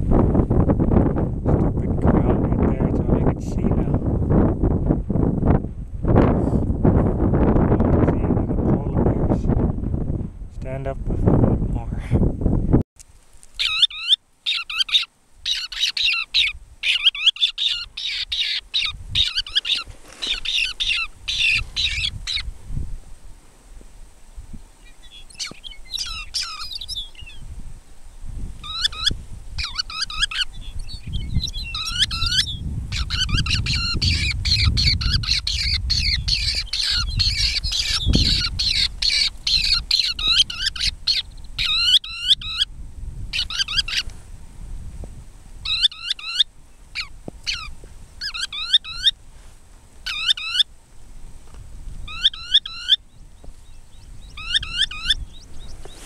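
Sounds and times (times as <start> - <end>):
wind on microphone: 0.0 - 12.9, 15.4 - 56.0
seabirds squawking: 13.6 - 22.4, 25.2 - 27.1, 28.6 - 30.6, 31.7 - 42.6, 43.4 - 44.0, 45.7 - 46.4, 47.0 - 49.1, 50.1 - 50.6, 52.1 - 53.0, 54.4 - 56.0.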